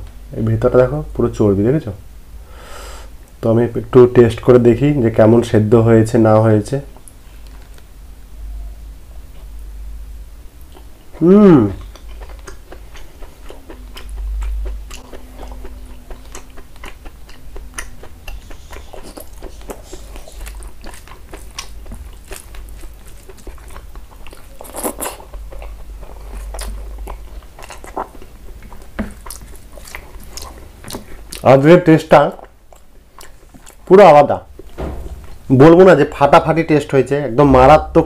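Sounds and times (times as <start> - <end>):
person chewing food: 10.6 - 31.5, 32.3 - 33.9.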